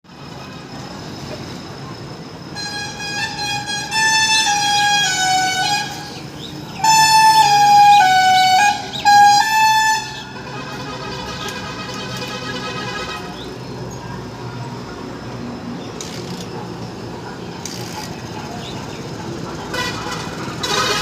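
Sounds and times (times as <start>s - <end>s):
musical vehicle horn: 2.5s - 13.5s, 19.7s - 21.0s.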